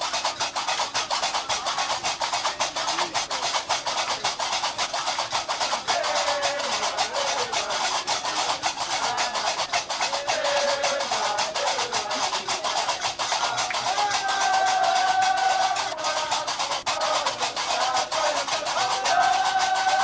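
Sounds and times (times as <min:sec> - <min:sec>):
iron castanets clattering: 0:00.0 - 0:20.0
person singing: 0:13.6 - 0:20.0.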